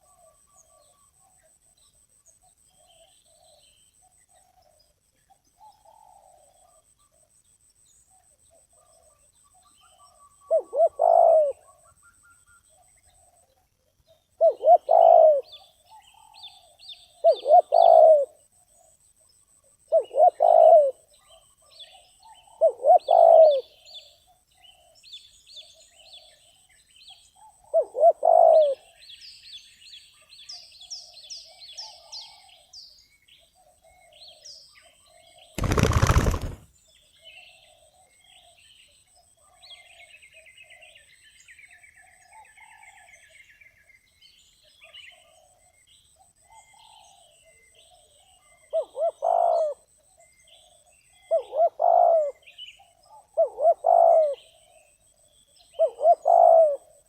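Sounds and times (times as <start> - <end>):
dove cooing: 10.5 - 11.8, 14.4 - 15.6, 17.2 - 18.4, 19.9 - 21.0, 22.6 - 23.8, 27.7 - 28.9, 35.6 - 36.6, 48.4 - 49.8, 51.3 - 52.4, 53.1 - 54.6, 55.8 - 57.0
small birds chirping: 28.7 - 49.0.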